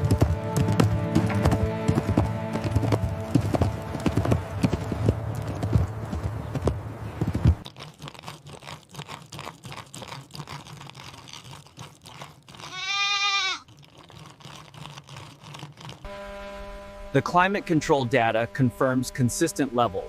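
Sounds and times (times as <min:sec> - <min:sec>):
small crunching clicks: 0:07.6 - 0:16.1
goat bleating: 0:12.6 - 0:13.6.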